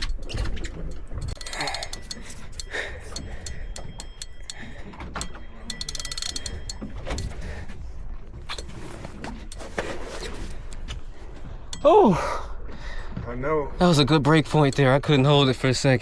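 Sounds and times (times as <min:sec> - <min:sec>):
fishing reel clicking: 0:00.0 - 0:07.8, 0:08.4 - 0:10.9, 0:13.8 - 0:16.0.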